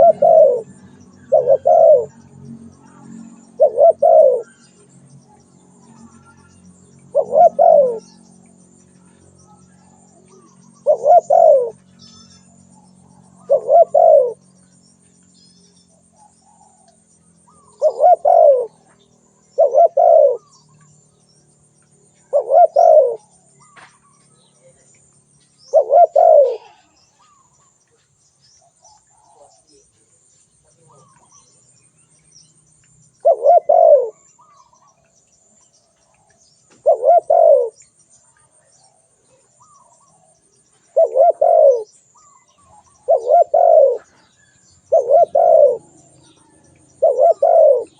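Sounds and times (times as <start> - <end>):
dove cooing: 0.0 - 6.5, 7.1 - 8.3, 9.0 - 11.8, 12.8 - 14.5, 17.5 - 20.5, 22.2 - 23.8, 25.7 - 27.4, 33.2 - 34.9, 36.8 - 37.8, 39.6 - 47.9.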